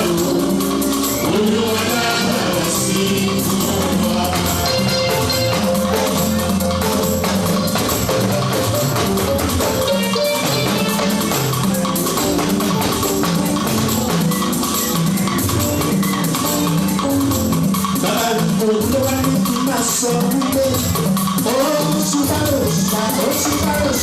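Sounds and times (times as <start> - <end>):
drums and percussion beat: 0.0 - 24.0
keyboard playing: 0.0 - 24.0.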